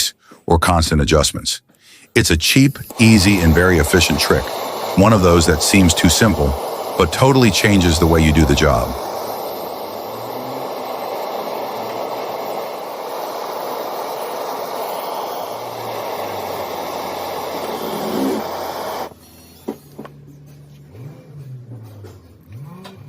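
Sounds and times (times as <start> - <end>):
steady rushing noise: 2.9 - 19.1.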